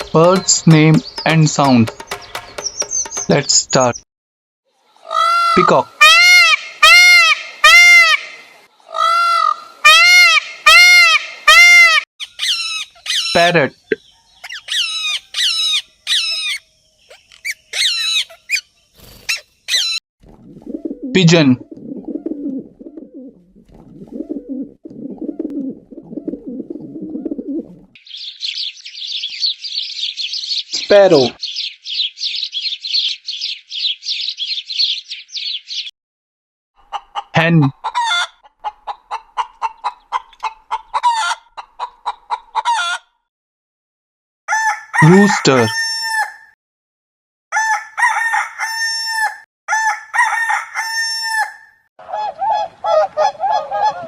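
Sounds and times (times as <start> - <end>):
bird honking calls: 0.0 - 3.6
small bird chirping: 0.0 - 3.9, 12.2 - 20.0, 28.0 - 35.9
pigeon cooing: 20.3 - 27.9, 52.0 - 54.0
rooster crowing: 44.5 - 46.5, 47.5 - 51.8.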